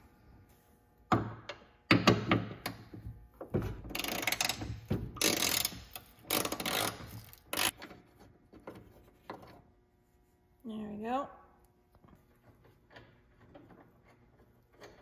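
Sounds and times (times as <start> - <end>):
hand ratchet clicking: 3.9 - 7.8.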